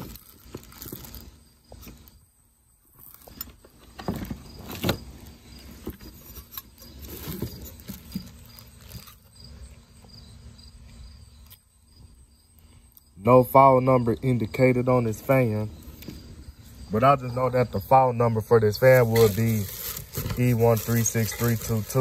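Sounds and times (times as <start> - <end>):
packaging rustling: 0.0 - 1.4, 6.1 - 9.3, 18.9 - 22.0
crickets chirring: 0.0 - 22.0.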